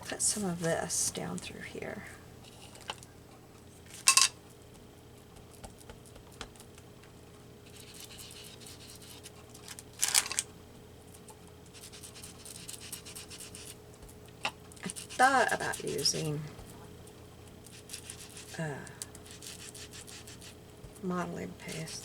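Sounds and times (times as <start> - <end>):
foam tool scratching paper: 7.7 - 9.3, 11.7 - 13.8, 14.8 - 16.0, 17.6 - 18.6, 19.2 - 20.6.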